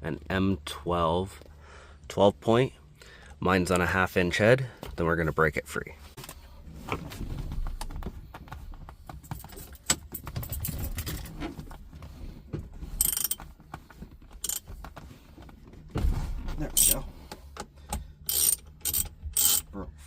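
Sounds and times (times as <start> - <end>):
metallic rattles: 13.0 - 13.4, 16.6 - 17.0, 18.3 - 19.6
ratchet clicking: 13.0 - 13.4, 14.4 - 14.6, 16.8 - 17.0, 18.3 - 19.7.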